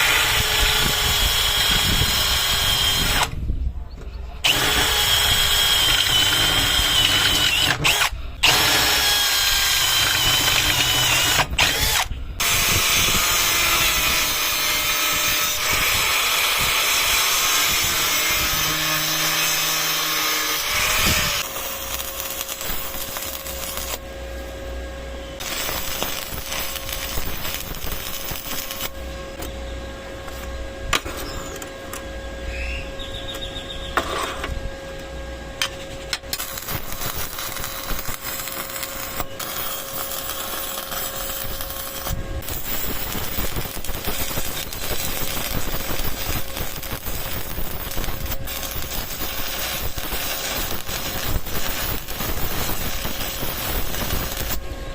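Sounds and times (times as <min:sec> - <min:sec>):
welding arc crackling: 0:04.5 - 0:24.1, 0:25.4 - 0:29.1, 0:36.2 - 0:54.7.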